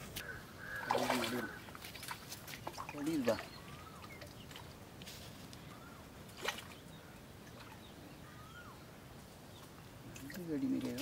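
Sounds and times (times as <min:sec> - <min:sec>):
faint bird chirps: 0:03.1 - 0:04.6, 0:05.6 - 0:08.9.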